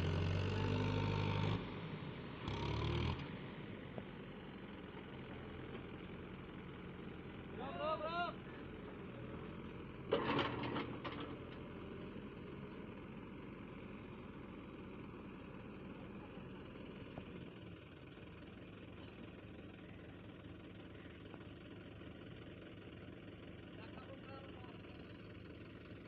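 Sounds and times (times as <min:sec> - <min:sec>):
diesel engine idling: 0:00.0 - 0:26.0
engine clatter: 0:03.9 - 0:26.0.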